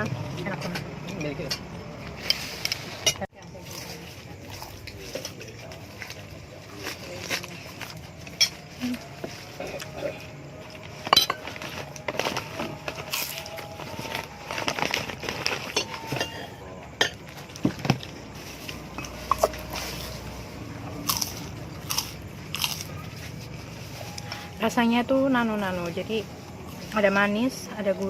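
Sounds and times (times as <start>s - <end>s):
cutlery clinking on a plate: 11.1s - 11.5s.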